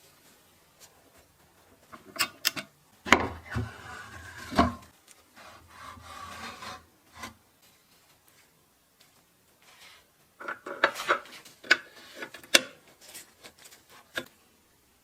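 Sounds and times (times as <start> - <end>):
scraping or rubbing: 3.4 - 7.4.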